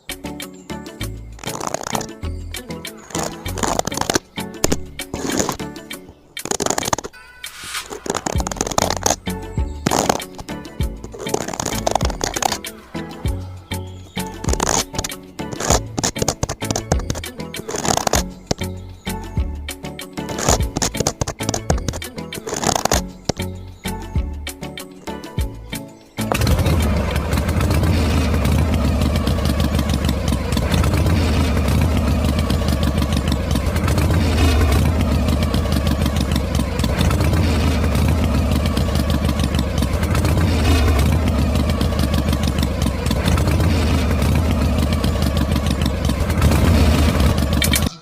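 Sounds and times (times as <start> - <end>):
small tractor engine running: 1.0 - 5.6, 8.0 - 19.7, 20.3 - 24.4, 25.4 - 48.0.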